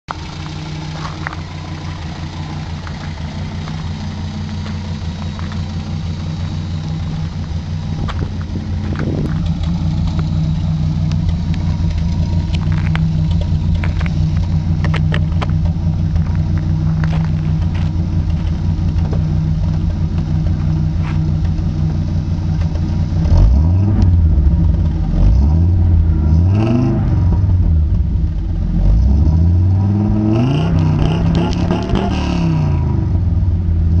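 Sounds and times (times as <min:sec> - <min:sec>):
engine revving: 0:00.1 - 0:34.0
loud exhaust idle: 0:00.1 - 0:34.0.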